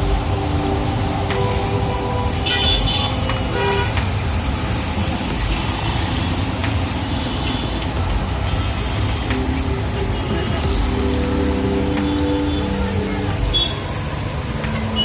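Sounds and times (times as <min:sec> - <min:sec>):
street traffic noise: 0:00.0 - 0:15.0
car horn toot: 0:01.3 - 0:04.0.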